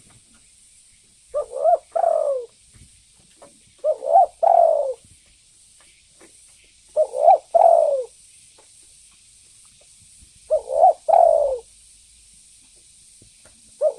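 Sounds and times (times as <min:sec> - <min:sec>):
dove cooing: 0:01.3 - 0:02.5, 0:03.7 - 0:05.0, 0:06.9 - 0:08.2, 0:10.5 - 0:11.7.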